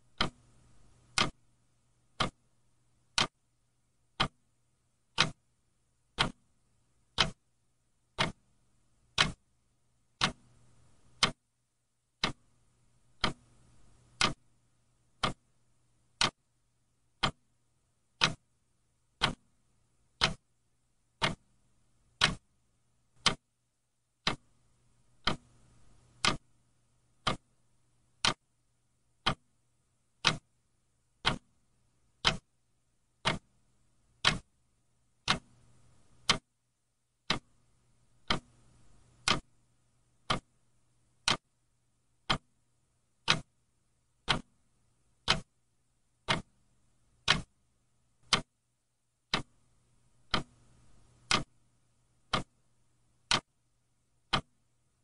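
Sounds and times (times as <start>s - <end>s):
clock ticking: 0.0s - 1.4s, 2.0s - 3.4s, 4.0s - 4.4s, 5.0s - 9.4s, 10.0s - 11.4s, 12.2s - 16.5s, 17.1s - 18.6s, 19.2s - 19.5s, 20.1s - 22.5s, 23.2s - 23.5s, 24.2s - 28.5s, 29.2s - 30.5s, 31.2s - 31.6s, 32.2s - 32.6s, 33.2s - 34.6s, 35.2s - 36.5s, 37.2s - 39.6s, 40.2s - 40.6s, 41.2s - 41.5s, 42.2s - 42.6s, 43.2s - 43.6s, 44.2s - 45.6s, 46.2s - 47.6s, 48.2s - 48.6s, 49.3s - 53.6s, 54.2s - 54.8s
faint low hum: 0.0s - 55.0s.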